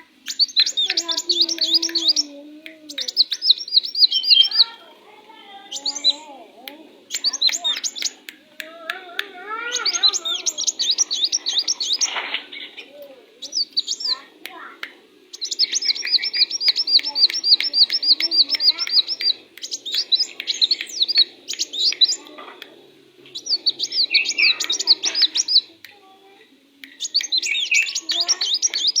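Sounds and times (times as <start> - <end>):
bird singing sharp chirps: 0.0 - 4.8, 5.6 - 6.4, 7.1 - 8.3, 9.6 - 12.8, 13.4 - 14.3, 15.3 - 22.3, 23.3 - 25.7, 26.9 - 29.0.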